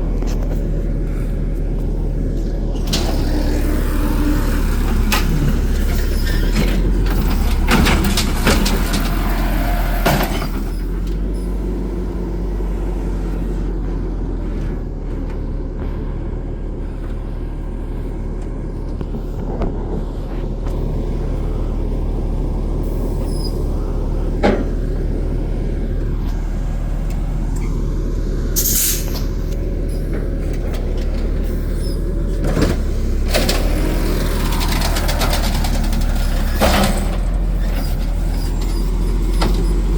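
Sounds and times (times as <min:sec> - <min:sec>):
diesel engine running: 0:00.0 - 0:39.9
knocks and clanks: 0:04.9 - 0:11.2
air brake hiss: 0:28.6 - 0:29.4.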